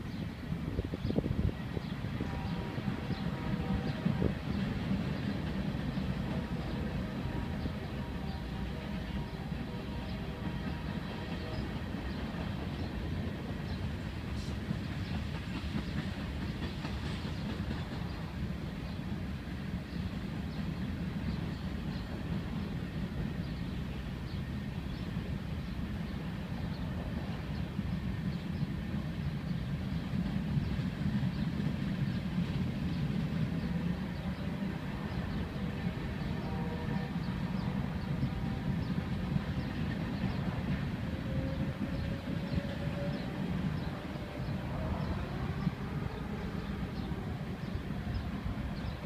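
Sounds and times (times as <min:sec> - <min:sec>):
freight train wheels rumbling: 0:00.0 - 0:49.0.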